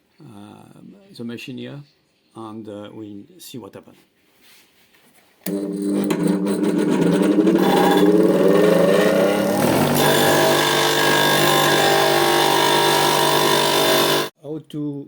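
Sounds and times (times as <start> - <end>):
power tool motor spinning up: 5.5 - 14.3.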